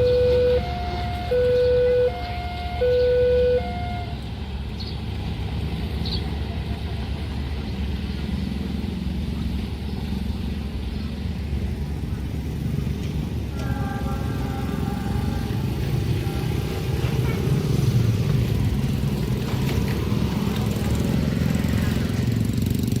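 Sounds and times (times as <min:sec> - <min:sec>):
level crossing alarm two-note tone: 0:00.0 - 0:04.1
rumble of passing road vehicles: 0:00.0 - 0:23.0.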